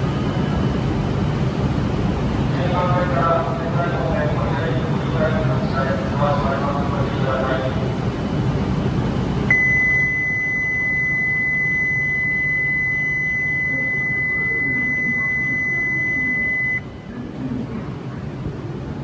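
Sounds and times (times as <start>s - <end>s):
low train rumble: 0.0s - 9.6s, 13.2s - 19.0s
high electronic buzzer tone: 9.5s - 16.8s.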